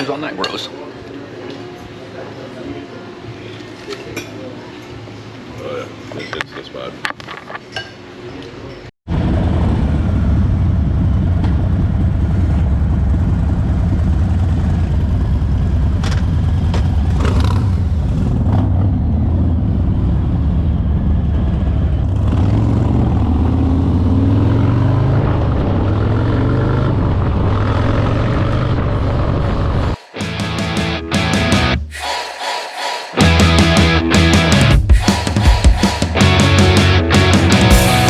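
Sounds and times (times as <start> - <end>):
motorcycle engine accelerating: 9.2 - 31.8, 33.2 - 38.0.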